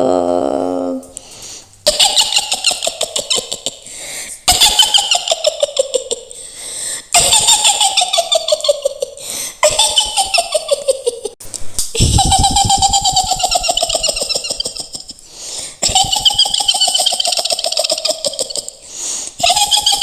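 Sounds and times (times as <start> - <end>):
woman cackling laugh: 1.9 - 3.9, 4.5 - 6.4, 7.2 - 11.4, 12.0 - 18.8, 19.4 - 20.0.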